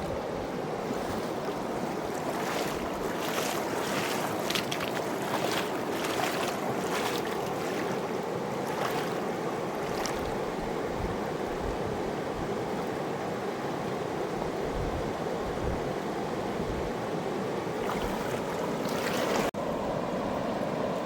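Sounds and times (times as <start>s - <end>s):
river rushing: 0.0s - 11.5s, 17.4s - 21.0s.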